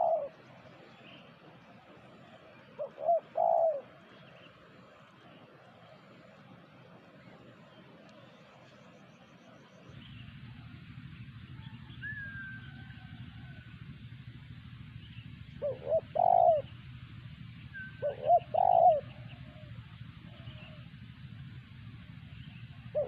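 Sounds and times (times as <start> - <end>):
dove cooing: 0.0 - 1.2, 1.8 - 5.1, 15.4 - 16.9, 17.6 - 21.0, 22.6 - 23.0
steady low rumble: 0.0 - 23.0.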